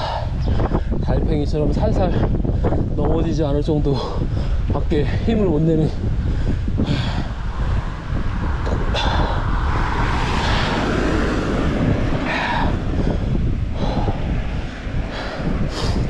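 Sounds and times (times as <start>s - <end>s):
wind rumbling on microphone: 0.0s - 16.0s
car passing: 5.9s - 16.0s.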